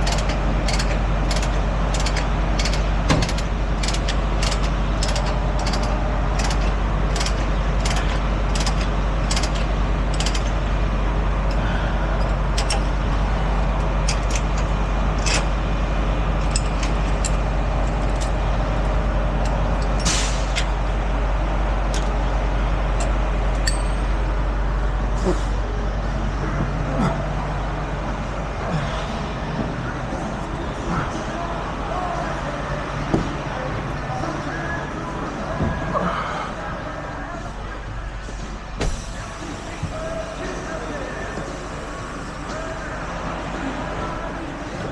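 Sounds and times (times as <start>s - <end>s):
metallic clicks and clanks: 0.0s - 10.6s, 12.2s - 15.6s, 16.4s - 20.8s, 21.9s - 22.2s, 23.0s - 24.1s
truck engine idling: 0.0s - 44.9s.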